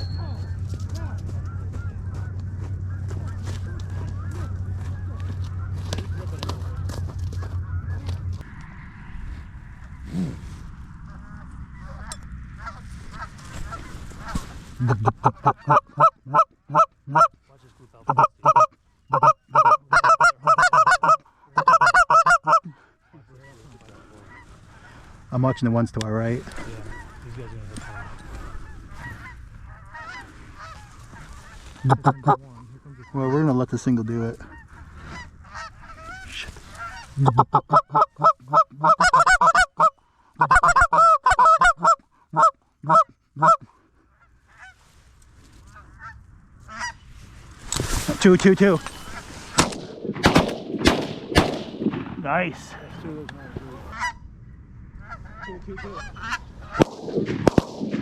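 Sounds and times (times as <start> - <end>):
goose call honks and clucks: 0.0 - 8.8, 11.1 - 17.4, 18.0 - 25.8, 26.4 - 44.9, 45.6 - 47.0, 53.4 - 54.2, 55.0 - 57.0.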